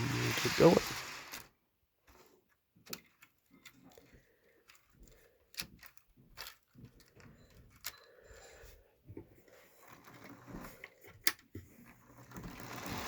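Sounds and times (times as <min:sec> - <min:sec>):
plastic model train parts clicking: 0:00.0 - 0:01.5, 0:02.8 - 0:08.1, 0:09.8 - 0:13.0.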